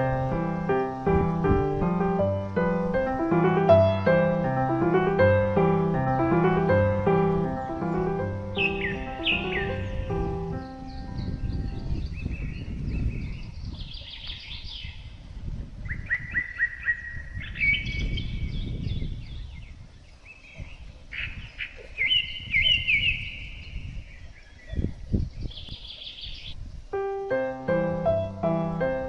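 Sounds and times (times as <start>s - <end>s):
piano music: 0.0s - 12.1s, 26.9s - 29.0s
animals chirping: 6.2s - 12.4s, 20.3s - 23.6s.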